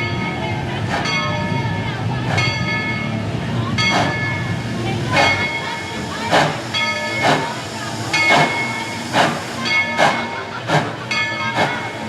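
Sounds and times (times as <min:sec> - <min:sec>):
steam locomotive chuffing: 0:00.0 - 0:12.0
steady steam hiss: 0:03.2 - 0:12.0.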